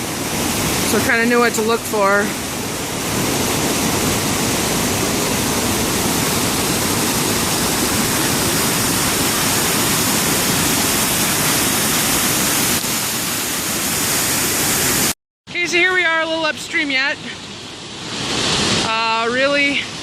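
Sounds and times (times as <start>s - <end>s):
creek water rushing over rocks: 0.0s - 15.1s.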